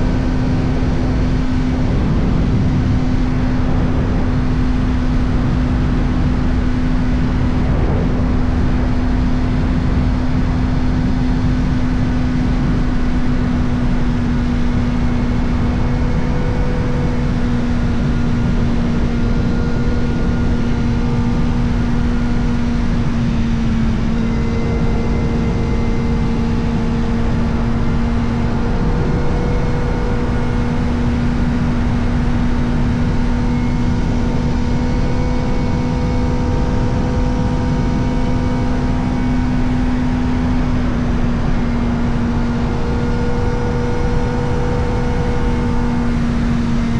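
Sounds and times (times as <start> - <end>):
motorcycle engine high-revving: 0.0 - 46.9
wind noise: 0.0 - 46.9.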